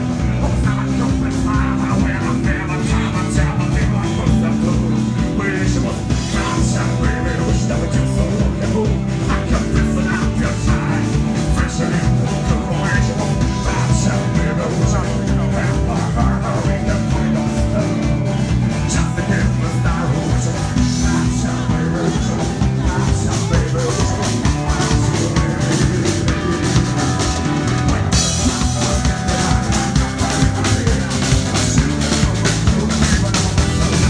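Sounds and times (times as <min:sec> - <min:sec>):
drum kit beat: 0:00.0 - 0:34.0
live country-blues band: 0:00.0 - 0:34.0.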